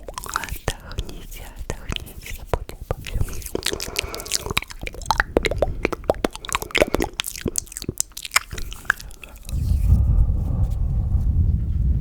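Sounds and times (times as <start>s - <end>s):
wet mouth clicks and smacking: 0.0s - 10.0s
low rumble close to microphone: 9.4s - 12.0s.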